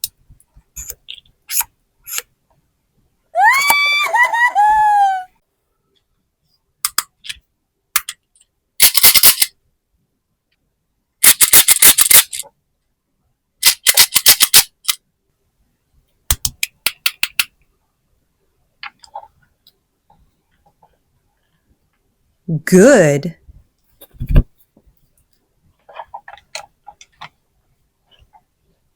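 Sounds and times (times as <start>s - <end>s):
plastic toys clicking and rattling: 6.8s - 7.4s, 8.0s - 9.5s, 11.2s - 12.5s, 13.6s - 15.0s, 16.3s - 17.6s, 25.9s - 27.4s.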